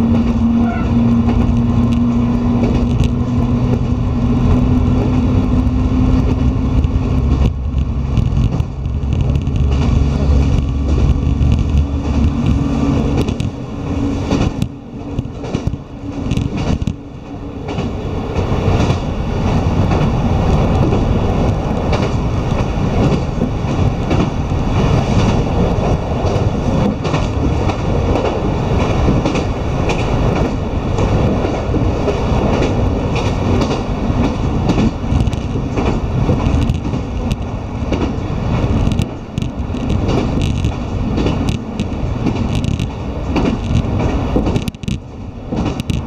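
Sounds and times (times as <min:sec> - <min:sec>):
diesel railcar rumble: 0:00.0 - 0:46.0
wheels clicking over rails: 0:00.0 - 0:46.0.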